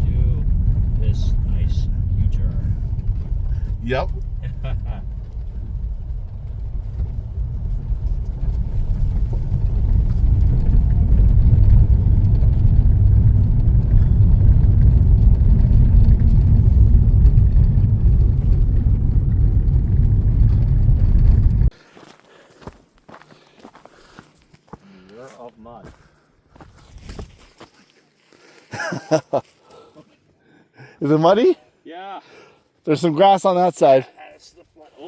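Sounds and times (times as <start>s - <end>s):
car engine and tyres rumbling: 0.0s - 21.8s.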